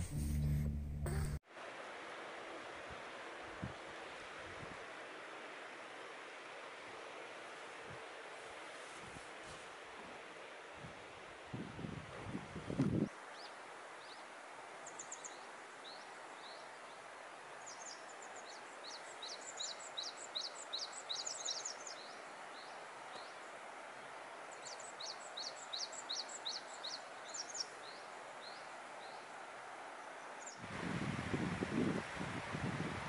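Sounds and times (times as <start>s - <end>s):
steady faint hiss: 0.0s - 33.0s
small birds chirping: 14.8s - 23.6s, 24.5s - 29.4s.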